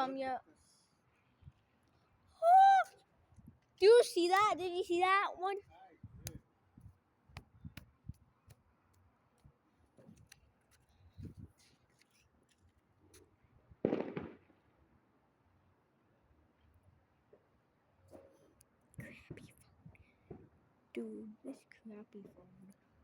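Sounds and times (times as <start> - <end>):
firework thuds: 13.8 - 14.5
distant firecrackers cracking: 13.8 - 14.6.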